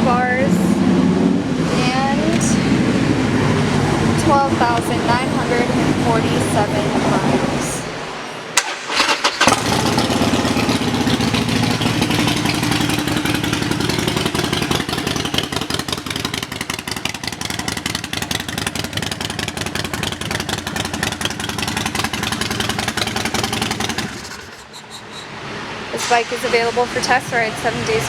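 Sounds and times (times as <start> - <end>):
motorcycle engine idling: 9.4 - 25.2.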